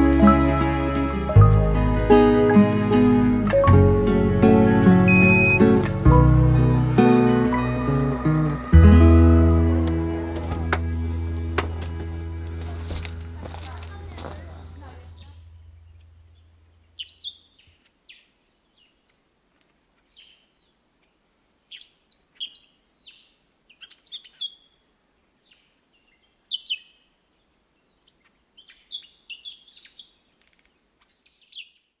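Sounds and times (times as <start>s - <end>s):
small birds chirping: 12.8s - 19.2s, 19.9s - 32.0s.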